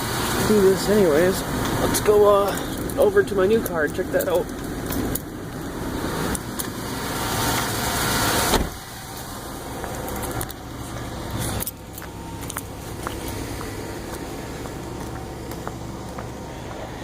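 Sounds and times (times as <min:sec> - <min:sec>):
car engines idling: 0:00.0 - 0:17.0.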